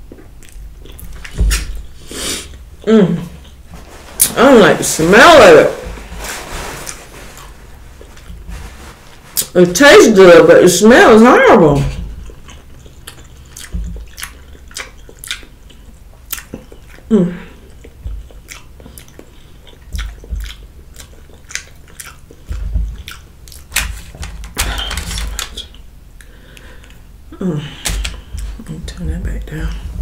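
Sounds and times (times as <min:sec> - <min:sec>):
person chewing food: 0:00.0 - 0:04.4, 0:05.8 - 0:09.5, 0:11.9 - 0:27.2, 0:27.8 - 0:30.0
wet mouth clicks and smacks: 0:12.2 - 0:23.9.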